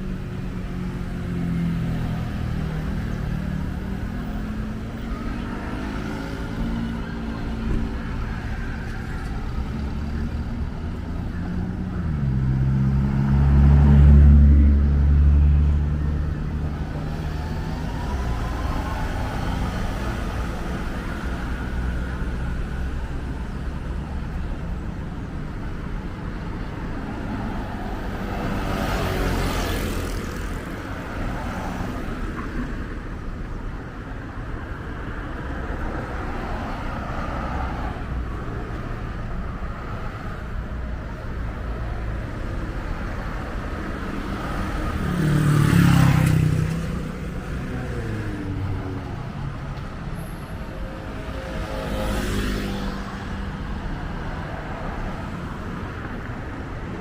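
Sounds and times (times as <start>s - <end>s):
city road traffic rumble: 0.0s - 57.0s
vehicle passing close by: 44.6s - 48.7s.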